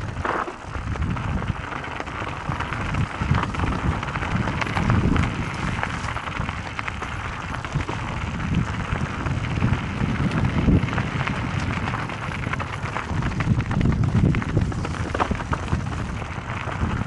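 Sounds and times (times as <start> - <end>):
bike rattles and clicks: 0.0 - 17.0
tyres crunching over gravel: 0.0 - 17.0
wind on microphone: 0.0 - 17.0.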